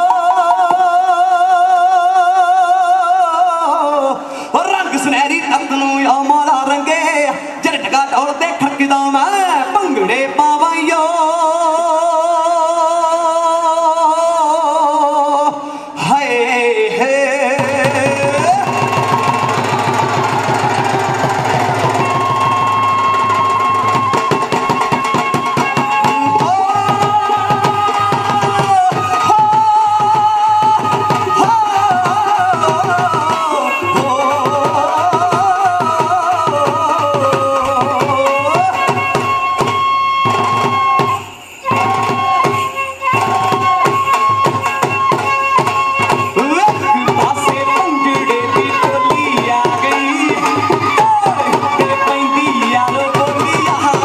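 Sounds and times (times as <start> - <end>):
folk music with fast drum beat: 16.0 - 54.0.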